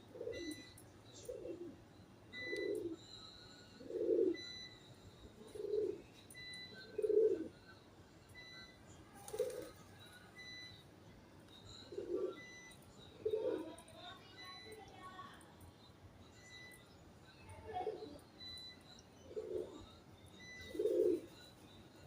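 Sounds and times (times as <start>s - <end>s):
pigeon cooing: 0.0s - 1.8s, 2.4s - 3.0s, 3.8s - 4.7s, 5.4s - 6.1s, 6.8s - 7.6s, 9.1s - 10.0s, 11.8s - 13.9s, 19.2s - 21.4s.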